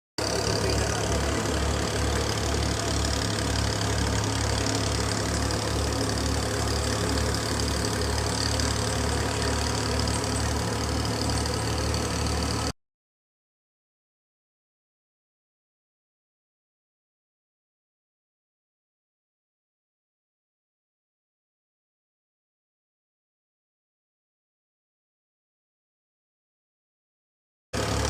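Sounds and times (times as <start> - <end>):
farm machinery engine running: 0.2 - 12.7, 27.8 - 28.0.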